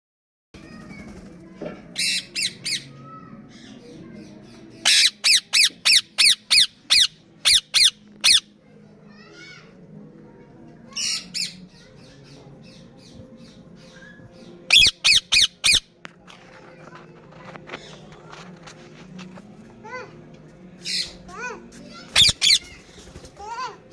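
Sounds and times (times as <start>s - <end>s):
parakeets squawking: 2.0s - 3.0s, 4.8s - 8.5s, 10.9s - 12.9s, 13.5s - 15.9s, 22.0s - 22.9s.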